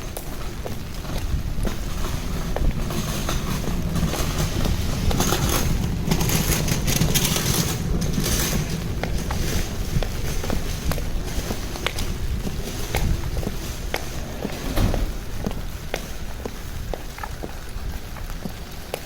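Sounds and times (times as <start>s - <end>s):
steady low rumble: 0.0s - 18.8s
footsteps on wet pavement: 0.0s - 19.0s
vehicle tyre hiss on wet road: 0.0s - 19.0s.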